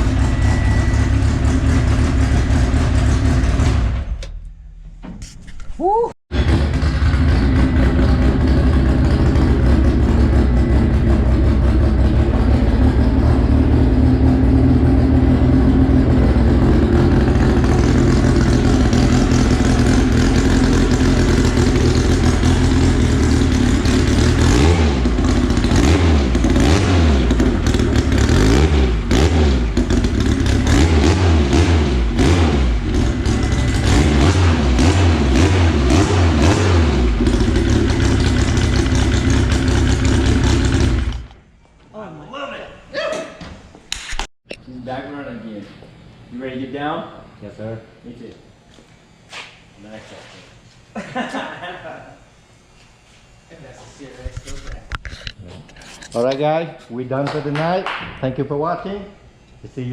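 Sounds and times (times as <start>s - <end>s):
car engine idling and revving: 0.0s - 4.7s, 6.3s - 41.4s.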